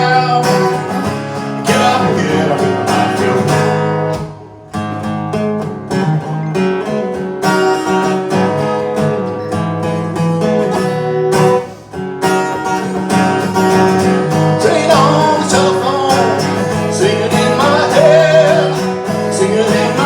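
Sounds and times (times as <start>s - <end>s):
person singing: 0.0s - 3.8s, 14.2s - 20.0s
acoustic guitar strumming: 0.0s - 20.0s.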